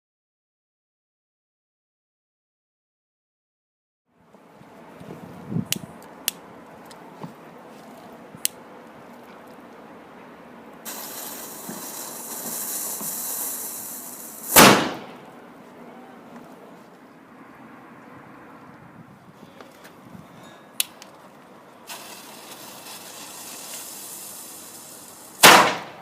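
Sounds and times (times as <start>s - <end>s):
fuse hissing: 10.8s - 15.2s, 21.9s - 25.9s
firecracker bang: 10.8s - 15.3s, 21.9s - 26.0s.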